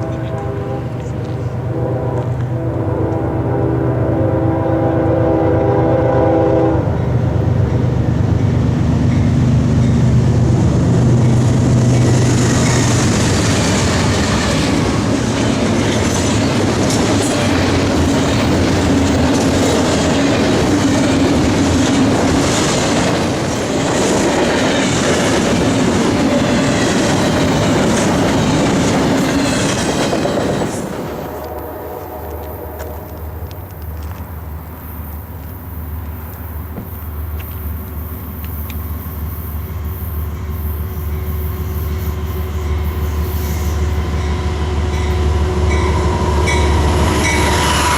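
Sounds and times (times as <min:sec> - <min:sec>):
train horn: 0:00.0 - 0:07.4, 0:31.0 - 0:33.6, 0:40.2 - 0:47.9
diesel locomotives rumbling: 0:00.0 - 0:47.9
train wheels clacking over rail joints: 0:11.2 - 0:34.3.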